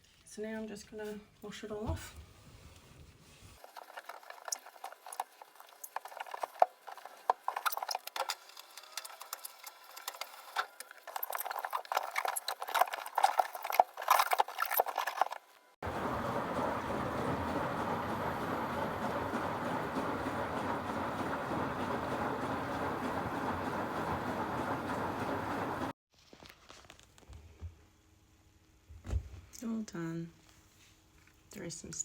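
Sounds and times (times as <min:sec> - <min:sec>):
wet wiping and squelching: 0:02.4 - 0:15.5.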